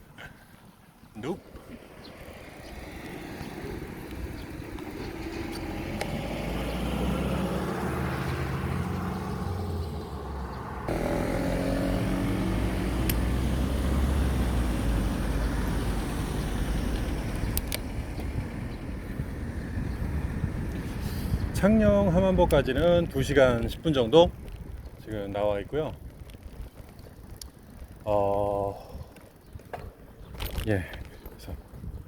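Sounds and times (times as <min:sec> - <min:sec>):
traffic passing close by: 0:01.3 - 0:22.5
wind rumble on microphone: 0:12.0 - 0:32.0.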